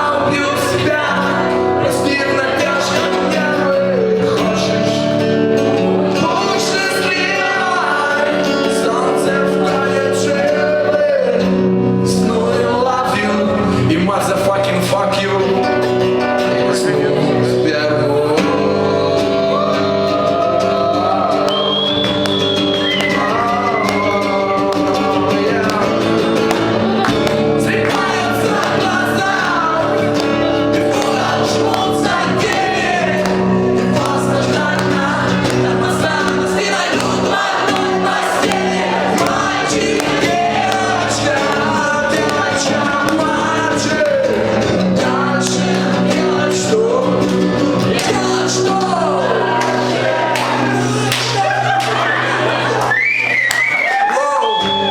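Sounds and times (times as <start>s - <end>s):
strummed acoustic guitar: 0.0s - 52.8s
person singing: 5.8s - 52.6s
voices joining in singing: 16.7s - 54.9s.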